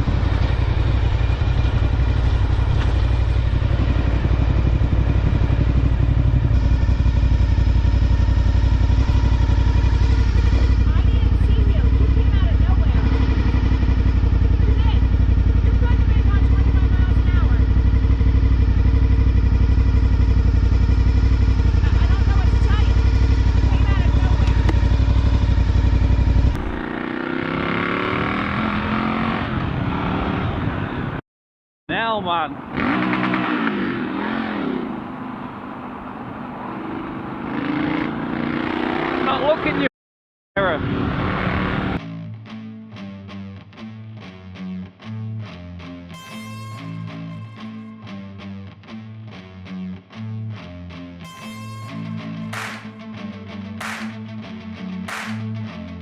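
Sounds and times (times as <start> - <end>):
motorcycle engine running: 0.0 - 31.2, 51.3 - 53.0, 53.8 - 54.2, 55.1 - 55.5
road and wind noise: 0.0 - 31.2, 31.9 - 39.9, 40.6 - 42.0.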